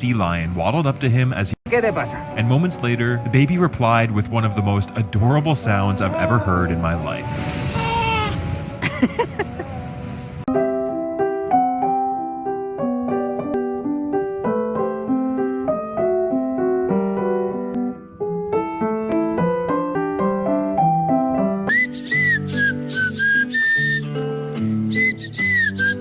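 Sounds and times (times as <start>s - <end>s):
light piano music: 0.0s - 26.0s.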